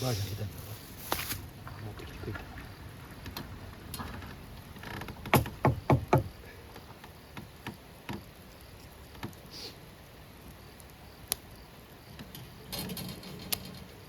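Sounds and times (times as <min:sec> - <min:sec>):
loud quick knocks: 0:05.3 - 0:06.3.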